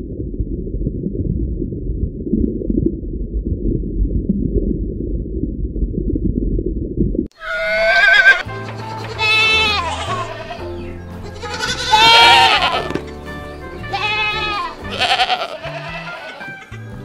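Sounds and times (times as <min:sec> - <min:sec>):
goats bleating: 0:07.4 - 0:13.0, 0:13.8 - 0:16.7
background music: 0:07.6 - 0:17.0.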